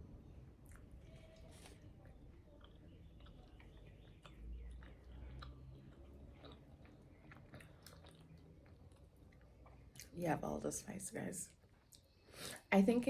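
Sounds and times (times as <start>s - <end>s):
person chewing: 0.6s - 10.1s.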